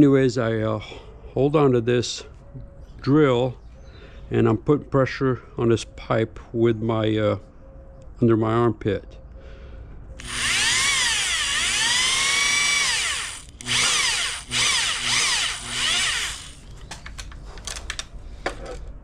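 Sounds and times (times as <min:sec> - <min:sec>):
electric drill boring into metal: 0:10.2 - 0:16.7.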